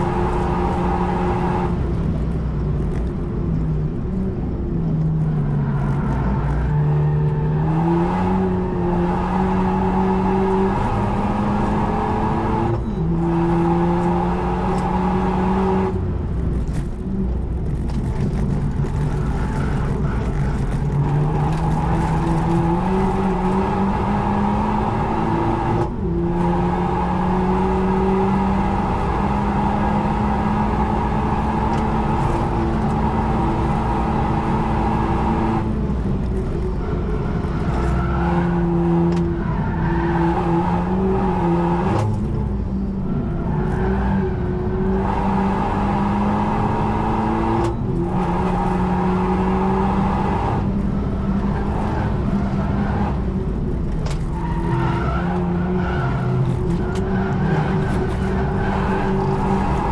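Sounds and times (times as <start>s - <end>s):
turbocharged car engine revving: 6.7s - 16.0s, 20.8s - 35.8s, 43.4s - 53.4s.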